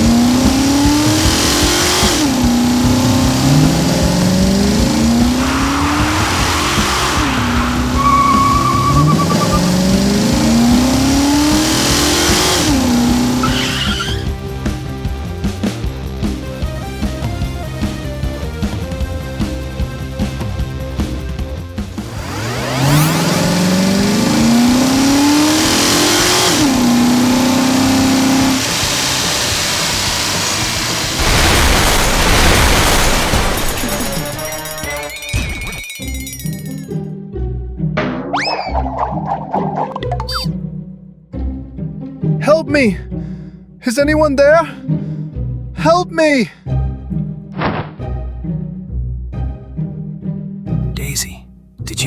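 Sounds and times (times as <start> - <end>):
cartoon engine revving: 0.0 - 14.3, 22.0 - 37.0
background music: 0.0 - 29.2, 30.5 - 52.0
tyre skid hiss: 0.6 - 10.6, 26.5 - 33.4.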